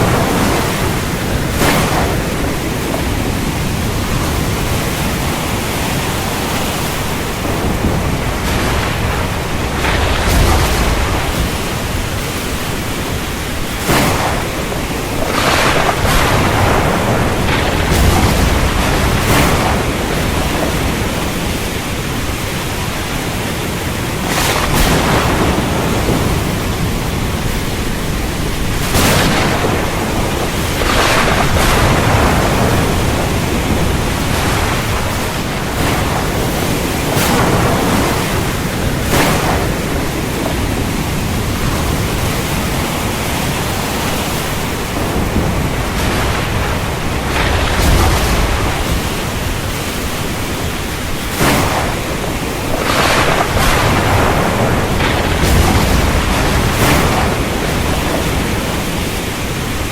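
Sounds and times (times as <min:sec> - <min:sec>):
heavy rain: 0:00.0 - 0:59.9
thunder cracks and rumble: 0:00.0 - 0:59.9.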